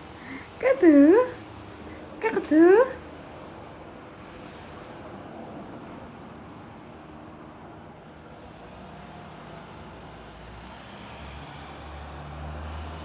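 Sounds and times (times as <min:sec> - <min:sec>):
outdoor noise: 0:00.0 - 0:13.0.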